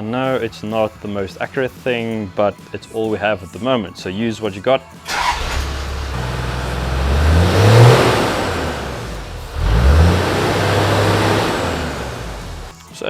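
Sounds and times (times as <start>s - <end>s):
diesel engine revving: 5.1s - 12.7s.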